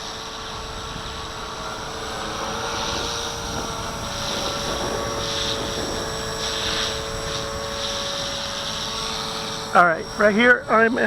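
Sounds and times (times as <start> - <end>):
rc helicopter motor whine: 0.0 - 11.0
wind rumbling on microphone: 0.0 - 11.0.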